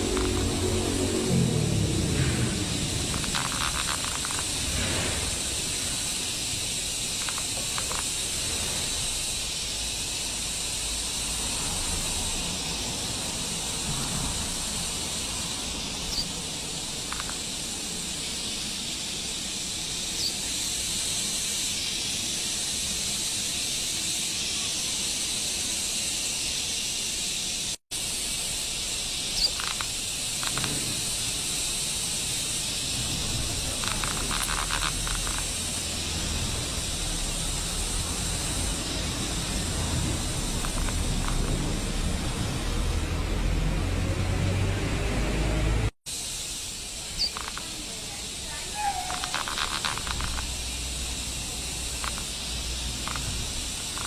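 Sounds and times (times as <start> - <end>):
high-pitched outdoor hiss: 0.0 - 54.0
faint chirps: 15.2 - 27.6, 28.9 - 31.5, 46.7 - 54.0.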